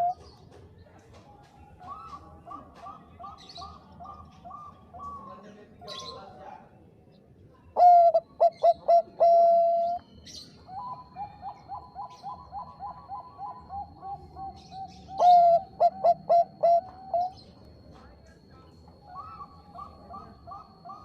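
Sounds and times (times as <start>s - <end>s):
dove cooing: 0.0s - 0.4s, 1.8s - 6.3s, 7.8s - 17.6s, 19.0s - 21.0s.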